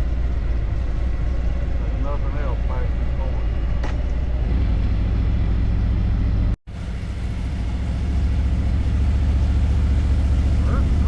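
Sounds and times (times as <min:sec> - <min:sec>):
motorcycle engine running: 0:04.5 - 0:11.0.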